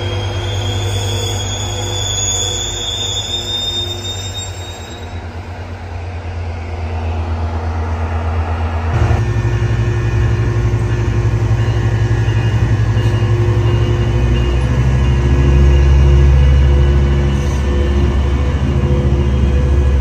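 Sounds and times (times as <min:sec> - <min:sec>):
high-pitched squeal: 0:00.0 - 0:05.6
diesel locomotive engine drone: 0:00.0 - 0:20.0.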